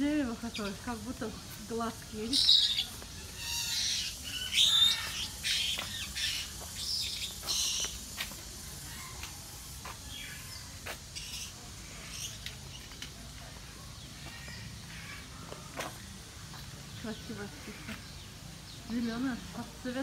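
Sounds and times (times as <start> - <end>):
birds chirping and whistling: 1.9 - 8.4, 10.1 - 13.1.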